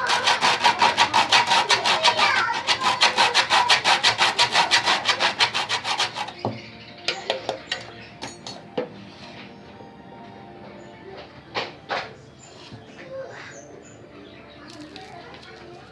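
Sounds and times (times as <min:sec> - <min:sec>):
bread grating by hand: 0:00.0 - 0:06.5.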